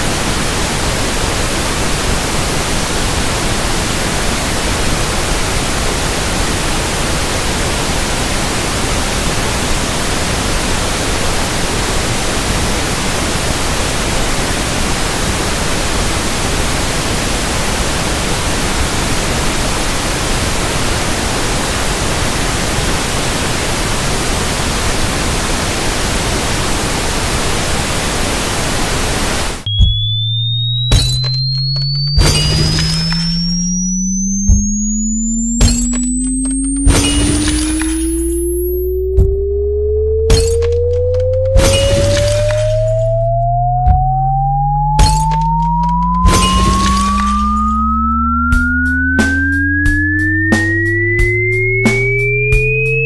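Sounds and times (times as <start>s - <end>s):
pink noise hiss: 0.0s - 29.7s.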